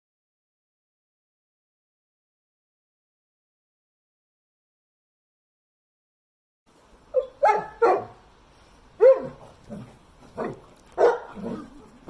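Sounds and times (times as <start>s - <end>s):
dog barking: 7.1s - 8.2s, 9.0s - 9.5s, 10.3s - 11.7s.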